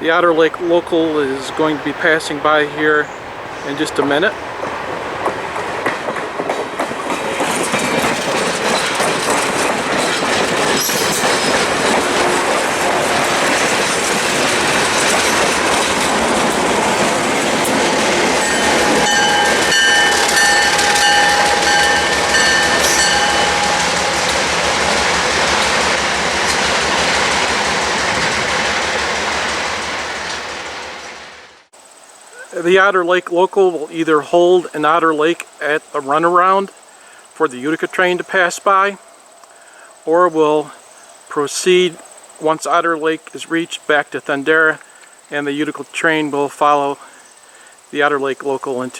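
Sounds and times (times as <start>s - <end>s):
train wheels rumbling on rails: 0.0s - 31.7s
wheels squealing against rail: 7.3s - 31.4s.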